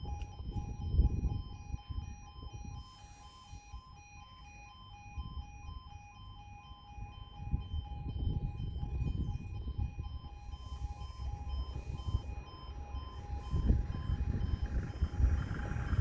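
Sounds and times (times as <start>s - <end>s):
level crossing alarm: 0.0s - 16.0s
low rumbling noise: 10.7s - 16.0s.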